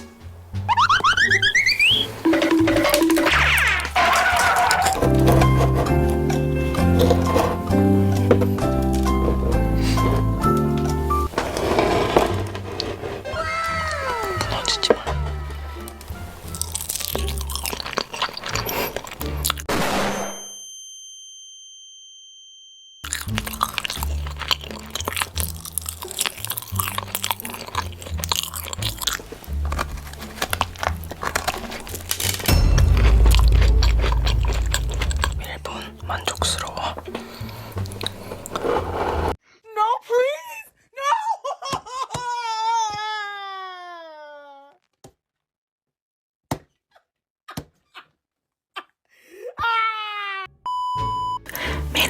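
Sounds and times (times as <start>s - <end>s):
drawn-out wailing cry: 1.3s - 5.2s, 13.2s - 16.7s
crunching and chewing food: 1.6s - 19.7s, 23.0s - 39.4s
steady electronic beep: 1.8s - 3.8s.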